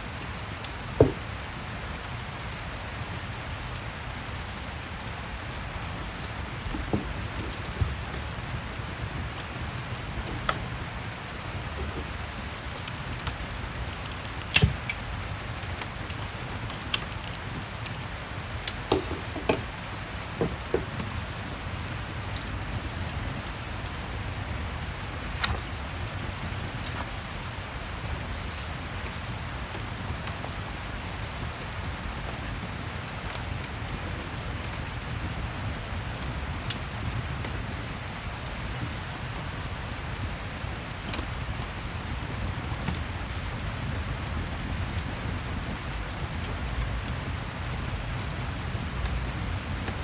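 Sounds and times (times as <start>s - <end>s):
fireplace crackling: 0.0s - 50.0s
steady rain hissing: 0.0s - 50.0s.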